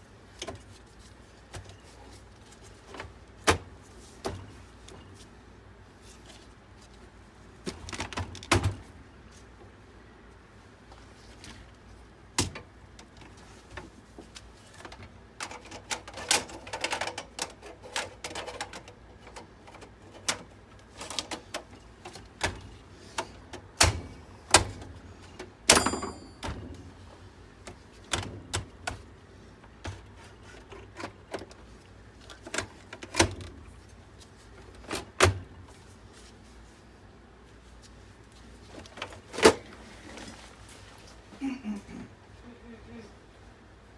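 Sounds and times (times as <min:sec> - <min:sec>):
computer parts clicking and knocking: 0:14.9 - 0:26.8.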